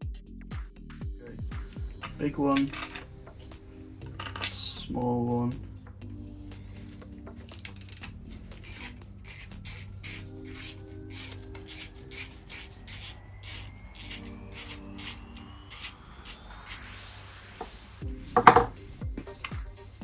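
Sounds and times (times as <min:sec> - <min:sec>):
hand tool rasping strokes: 0:08.6 - 0:17.0.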